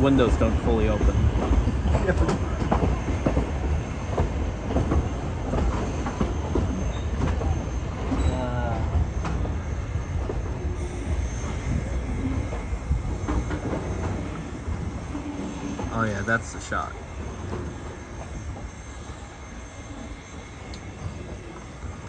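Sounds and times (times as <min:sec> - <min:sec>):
train rumble: 0:00.0 - 0:22.0
wheel flange squeal: 0:05.8 - 0:21.4
train wheel clicks: 0:12.3 - 0:14.8, 0:20.6 - 0:22.0.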